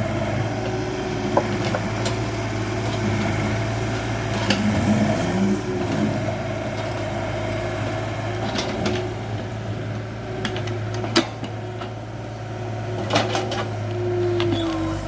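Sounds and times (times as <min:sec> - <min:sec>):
excavator diesel engine running: 0:00.0 - 0:15.0
hydraulic whine: 0:13.5 - 0:15.0.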